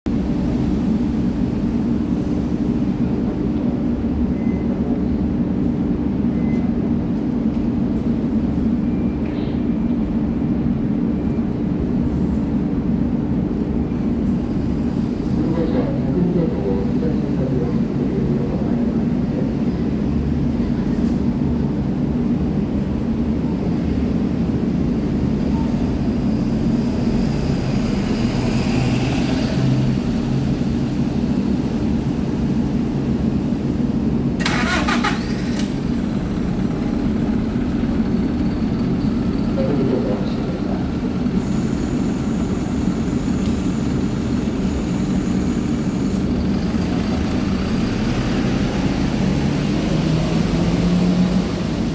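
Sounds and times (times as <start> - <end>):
bus diesel engine idling: 29.6 - 51.9.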